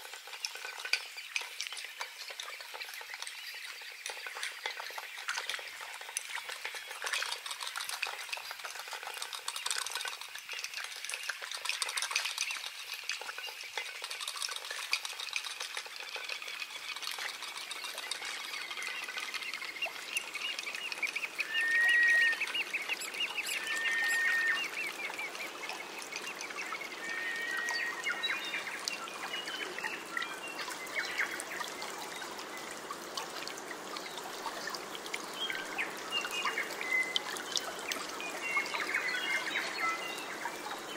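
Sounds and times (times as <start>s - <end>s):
water trickling: 0.0s - 40.9s
bird calling: 18.4s - 30.3s.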